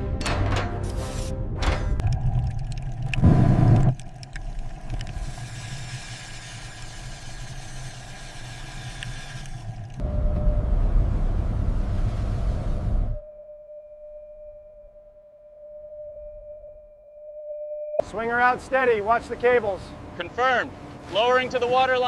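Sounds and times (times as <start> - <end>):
low mechanical rumble: 1.8 - 13.6
hiss: 5.1 - 9.8.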